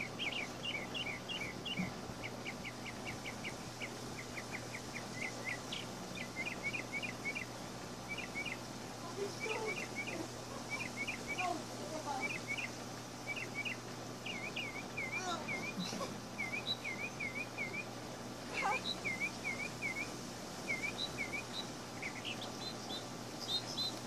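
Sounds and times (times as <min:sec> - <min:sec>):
birds chirping: 0:00.0 - 0:24.0
steady low hum: 0:00.0 - 0:24.0.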